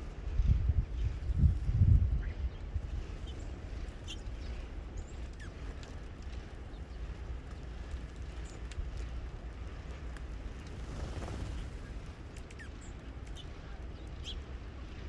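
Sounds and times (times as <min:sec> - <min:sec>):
steady low rumble: 0:00.0 - 0:15.0
faint bird chips: 0:11.0 - 0:14.5.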